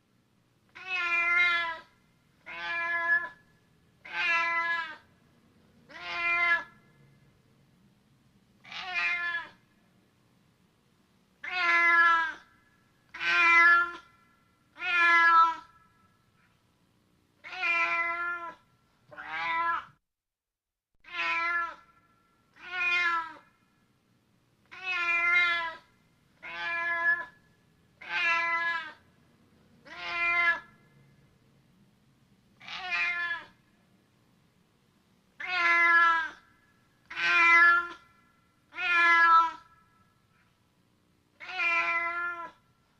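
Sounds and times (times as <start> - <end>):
cat meowing: 0.7 - 3.4, 4.0 - 5.1, 5.9 - 6.8, 8.6 - 9.7, 11.4 - 12.5, 13.1 - 14.1, 14.7 - 15.8, 17.4 - 20.0, 21.0 - 23.5, 24.7 - 27.4, 28.0 - 29.0, 29.8 - 30.8, 32.6 - 33.6, 35.4 - 38.1, 38.7 - 39.8, 41.4 - 42.6.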